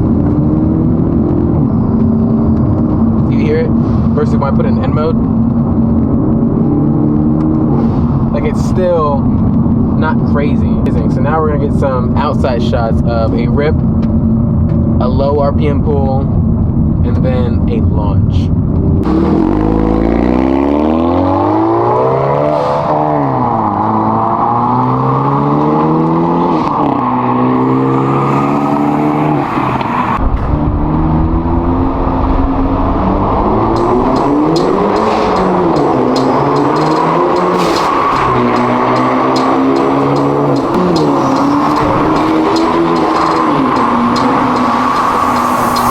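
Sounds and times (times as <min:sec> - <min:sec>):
heavy low rumble: 0:00.0 - 0:20.1, 0:30.2 - 0:45.9
car exhaust accelerating hard: 0:00.0 - 0:45.9
car exhaust note: 0:30.2 - 0:45.9.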